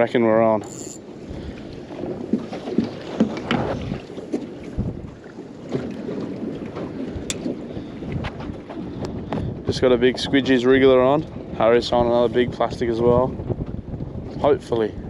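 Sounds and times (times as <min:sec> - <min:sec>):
wind on microphone: 0:00.0 - 0:15.0
water slapping against boat hull: 0:01.4 - 0:12.1
short knocks and splashes: 0:02.0 - 0:07.6.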